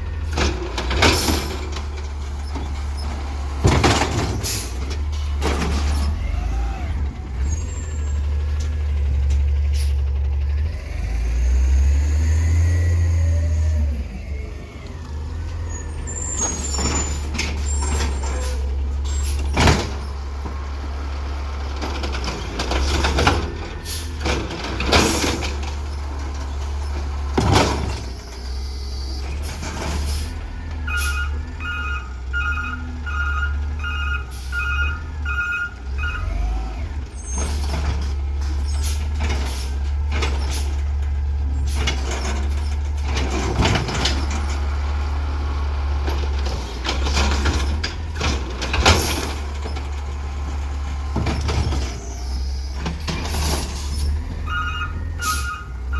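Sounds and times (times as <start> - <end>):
diesel engine rumble: 0.0 - 55.9
clanks: 15.5 - 30.4, 45.9 - 55.9
back-up alarm beeping: 30.8 - 36.4, 54.5 - 55.7.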